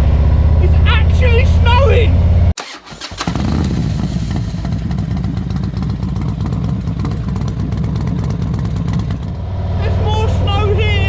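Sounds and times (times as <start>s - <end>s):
motorcycle engine rumbling: 2.6s - 9.6s.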